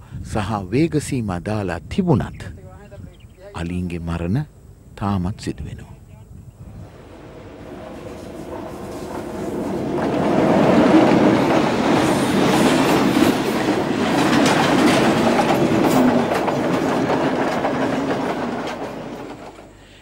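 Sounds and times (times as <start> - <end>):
diesel train rumbling past: 6.7 - 20.0
wheels clacking over rail joints: 7.3 - 19.8.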